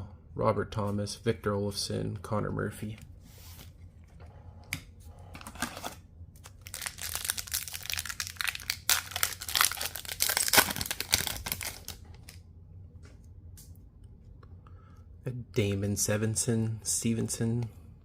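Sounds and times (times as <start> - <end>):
plastic wrapper crinkling and tearing: 5.6 - 12.4.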